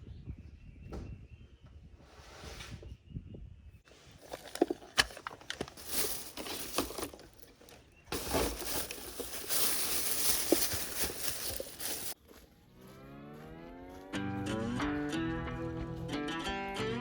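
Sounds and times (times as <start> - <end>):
rustling and crinkling handling: 3.9 - 12.2.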